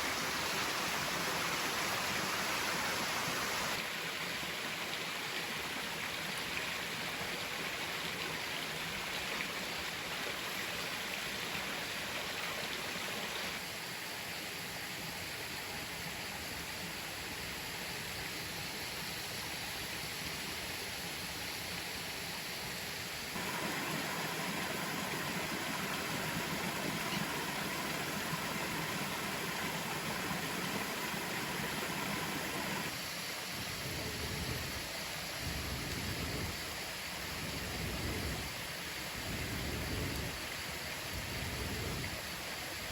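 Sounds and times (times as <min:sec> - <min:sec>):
waterfall rushing: 0:00.0 - 0:03.8, 0:23.4 - 0:33.0.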